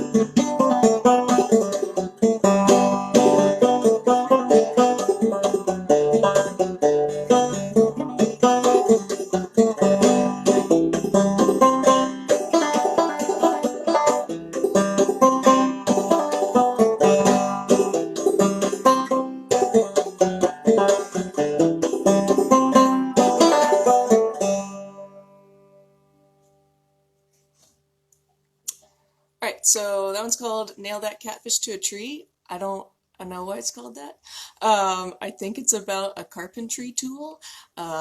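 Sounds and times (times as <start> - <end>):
clawhammer banjo playing: 0.0 - 26.4.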